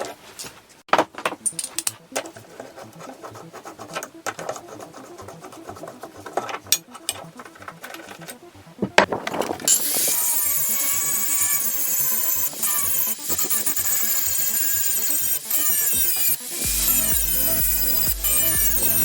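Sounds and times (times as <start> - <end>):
loud background music: 3.4 - 19.0
ratchet spanner clicking: 9.7 - 19.0.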